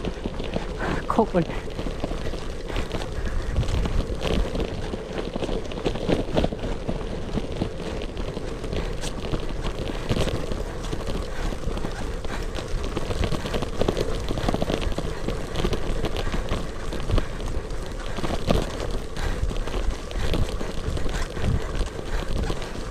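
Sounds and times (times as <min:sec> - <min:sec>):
bike clicks and rattles: 0:00.0 - 0:22.9
bike tyres on rough road: 0:00.0 - 0:22.9
wind on microphone: 0:01.8 - 0:12.4.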